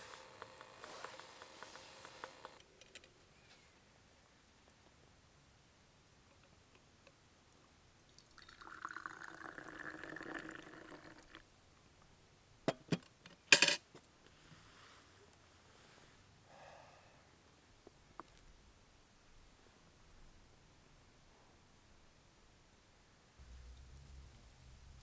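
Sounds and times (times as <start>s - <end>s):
liquid pouring into vessel: 8.2s - 11.4s.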